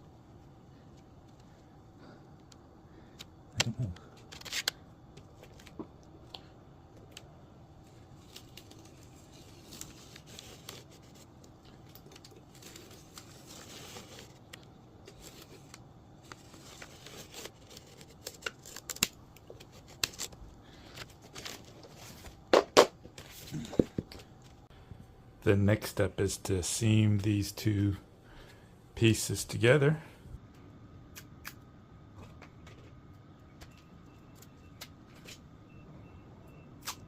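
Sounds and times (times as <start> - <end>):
rustling of tape and veneer: 2.9 - 5.9, 7.0 - 24.7.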